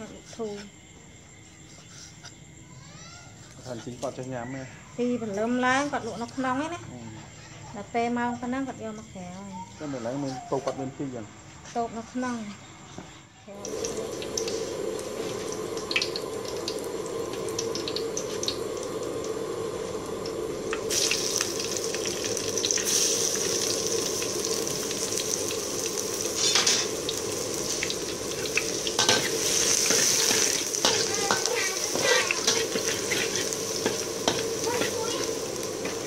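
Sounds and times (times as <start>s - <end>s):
garlic sizzling in oil: 13.5s - 36.0s
metal spatula scraping a wok: 26.3s - 27.0s, 27.7s - 36.0s.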